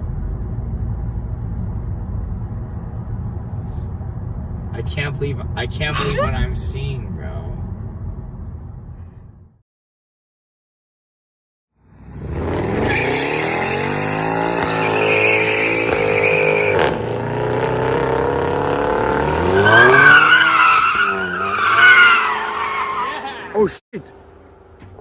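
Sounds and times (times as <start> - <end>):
tyres squealing: 5.9 - 6.4
car engine revving hard: 12.0 - 23.6.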